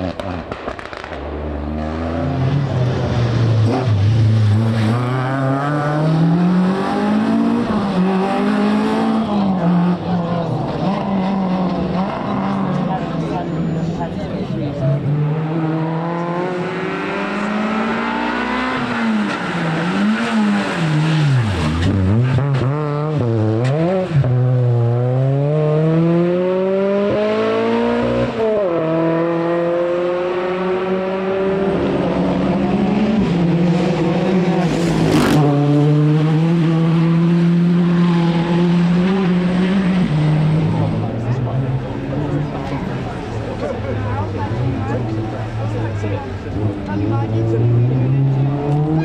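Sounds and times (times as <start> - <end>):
rally car engine revving: 0.0 - 49.0
sharp crack: 0.2 - 1.4.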